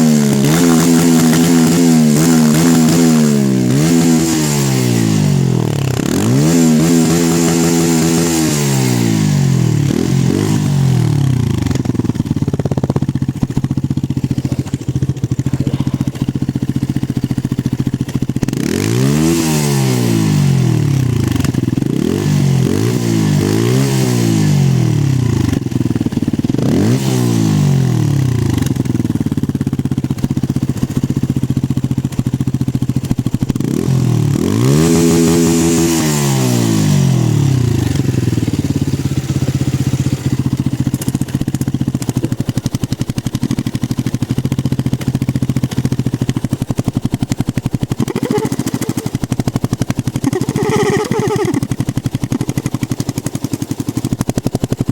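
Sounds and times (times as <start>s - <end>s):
motorcycle engine idling and revving: 0.0s - 54.9s.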